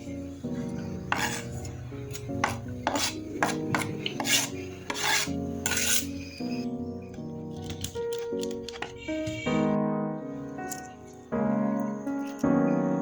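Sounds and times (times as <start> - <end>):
soft background music: 0.0 - 13.0
short rasping scrapes: 1.1 - 1.7, 2.4 - 6.4.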